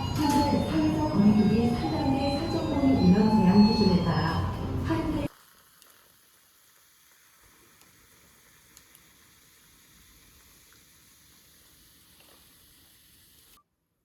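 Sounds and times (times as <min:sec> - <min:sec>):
faint steady hiss: 0:05.2 - 0:13.6
small ticks: 0:08.7 - 0:10.9, 0:12.1 - 0:12.8.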